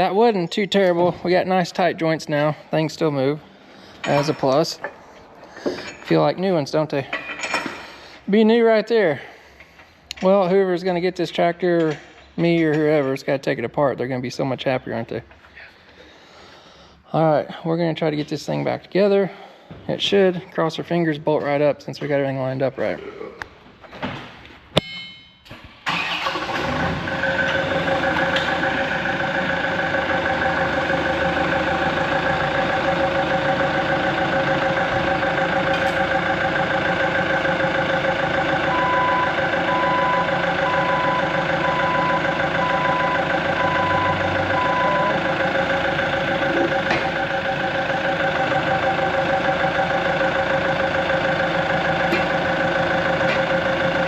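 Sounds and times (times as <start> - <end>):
diesel dozer engine running: 25.9 - 54.0
backup alarm beeping: 32.6 - 51.1.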